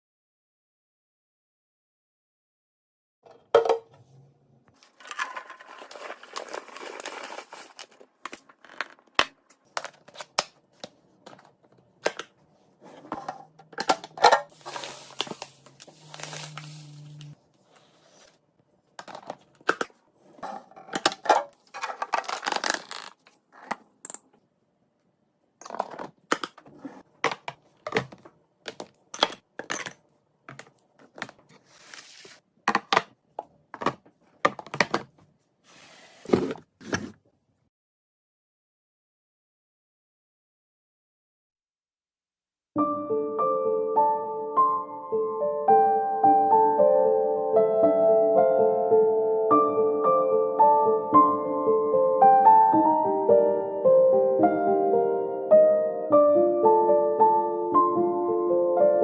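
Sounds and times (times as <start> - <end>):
hard items clinking set down: 3.3 - 4.0, 4.8 - 10.4, 12.9 - 17.3, 19.0 - 24.3, 25.6 - 33.1
packaging rustling: 4.8 - 11.7, 13.8 - 17.4, 20.9 - 23.7
pouring: 14.5 - 17.3.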